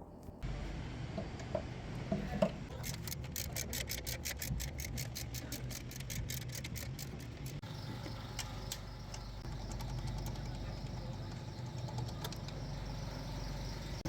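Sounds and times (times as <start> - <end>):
ratchet wrench clicking: 2.7 - 7.6
low steady hum: 6.6 - 14.0.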